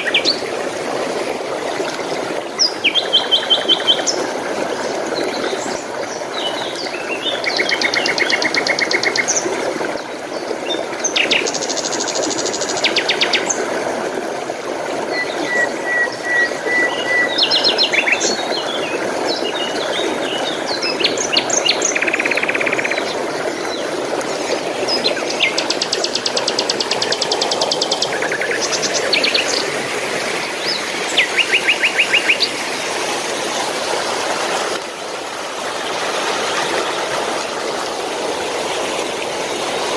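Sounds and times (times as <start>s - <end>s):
flowing water: 0.0s - 39.9s
songbirds trilling and chirping: 15.1s - 29.7s.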